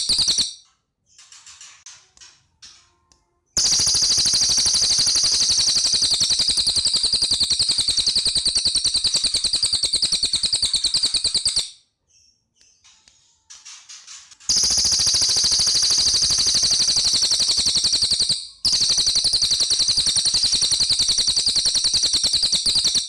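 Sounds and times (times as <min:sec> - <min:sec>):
bird rattling trill: 0:00.0 - 0:00.6, 0:03.6 - 0:11.7, 0:13.6 - 0:23.0.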